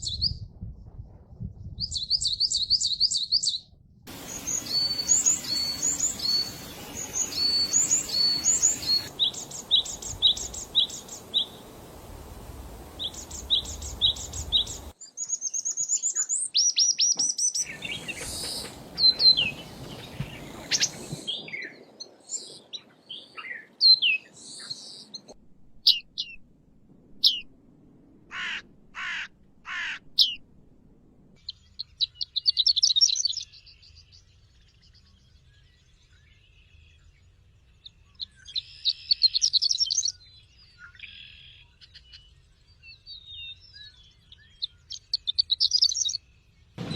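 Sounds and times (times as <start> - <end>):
harsh drawn-out bird calls: 4.1 - 14.9, 17.6 - 21.4, 28.3 - 30.4
rapid bird chirps: 4.1 - 15.0, 17.6 - 21.4
high whistled bird notes: 4.2 - 11.6.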